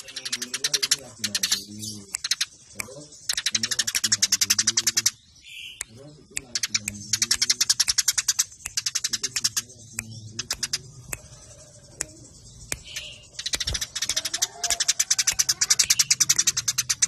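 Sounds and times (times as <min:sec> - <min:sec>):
sparrows chirping: 0:00.0 - 0:17.0.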